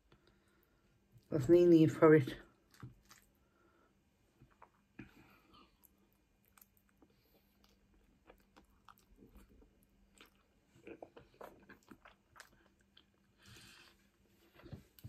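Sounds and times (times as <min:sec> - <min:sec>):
chewing noodles: 0:02.5 - 0:15.0.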